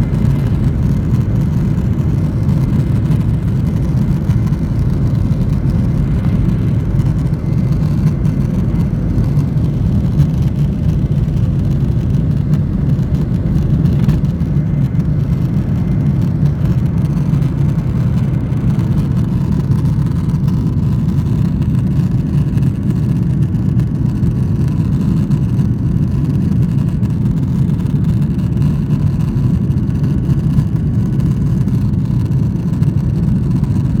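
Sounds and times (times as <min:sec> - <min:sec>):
jet engines rumbling in cabin: 0:00.0 - 0:34.0.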